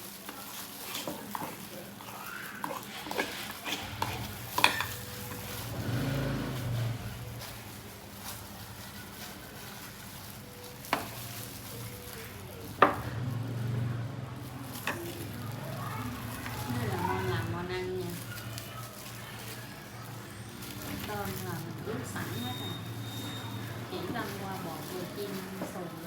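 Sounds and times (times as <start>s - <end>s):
food sizzling in hot oil: 0.0s - 8.1s.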